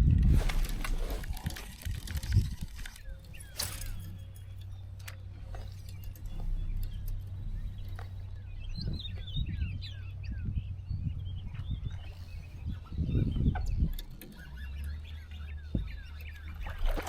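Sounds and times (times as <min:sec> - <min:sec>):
low steady rumble: 0:00.0 - 0:17.0
bird chirping: 0:01.3 - 0:17.0.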